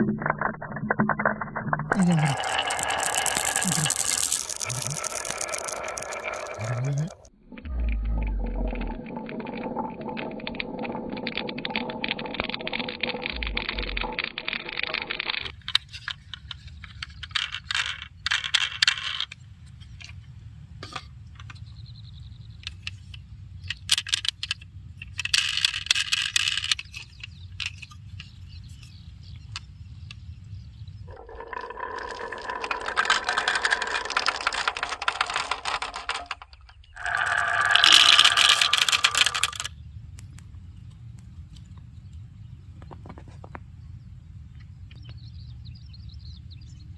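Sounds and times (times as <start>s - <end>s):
marbles rolling down wooden track: 0.0s - 16.2s, 16.9s - 19.4s, 25.2s - 27.0s, 31.1s - 39.7s.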